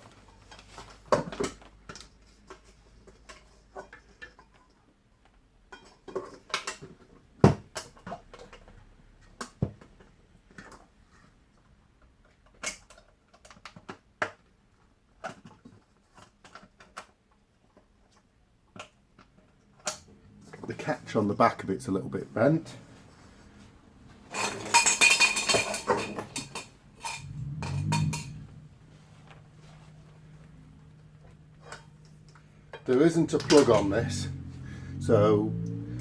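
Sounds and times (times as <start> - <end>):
vacuum cleaner parts clicking: 31.0 - 34.0.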